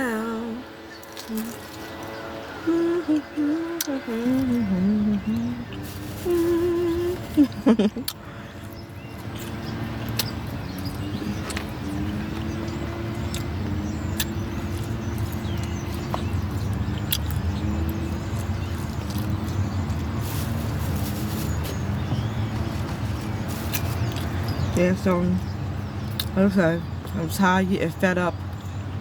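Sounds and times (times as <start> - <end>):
faint wavering tones: 0.0 - 7.4
vehicle engine rumble: 0.0 - 29.0.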